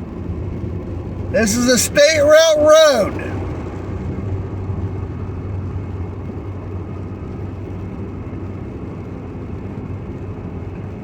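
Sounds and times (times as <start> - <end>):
car engine hum: 0.8 - 3.6.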